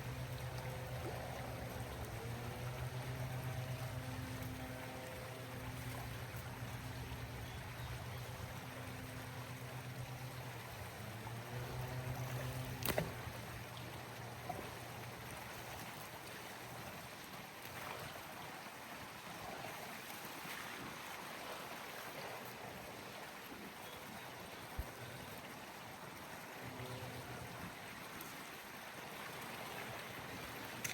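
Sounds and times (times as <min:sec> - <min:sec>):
motor humming: 0:00.0 - 0:15.8, 0:26.5 - 0:27.7.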